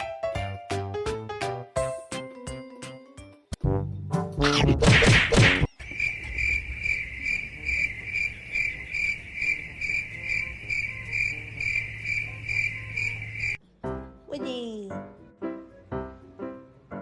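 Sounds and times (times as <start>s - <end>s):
cricket chirping: 5.7s - 13.6s.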